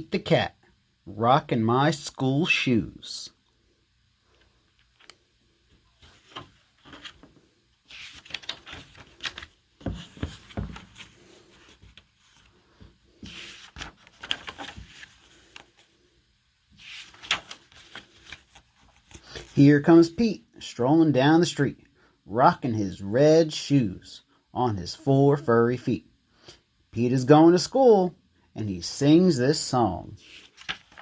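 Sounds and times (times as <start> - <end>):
book pages rustling: 6.0 - 16.0, 16.8 - 19.6, 30.2 - 31.0.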